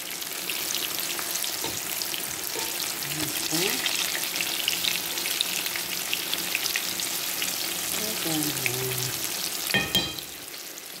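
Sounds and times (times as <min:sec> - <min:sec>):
sizzling oil with crackles: 0:00.0 - 0:11.0
metal fork clinking on pan: 0:02.6 - 0:02.8, 0:09.7 - 0:10.3.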